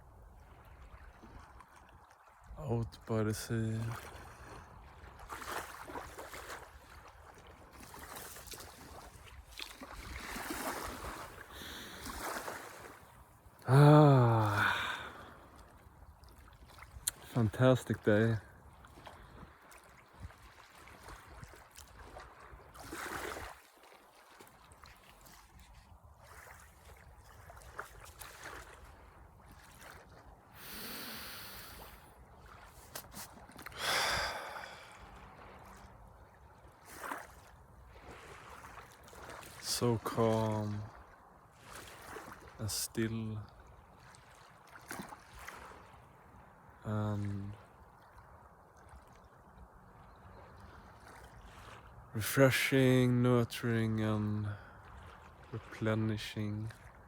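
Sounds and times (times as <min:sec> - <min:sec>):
sea water: 0:00.0 - 0:57.0
person breathing out: 0:11.5 - 0:12.2, 0:13.6 - 0:15.4, 0:30.6 - 0:32.1, 0:33.8 - 0:35.0
person's drawn-out wordless cry: 0:13.6 - 0:15.1.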